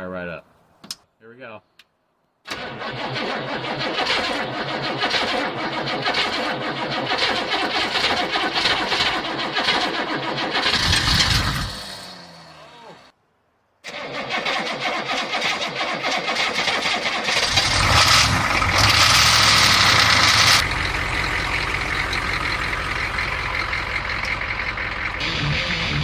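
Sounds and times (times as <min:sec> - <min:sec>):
diesel engine cranking and starting: 0:02.4 - 0:13.1, 0:13.8 - 0:26.0
diesel engine idling: 0:17.2 - 0:26.0.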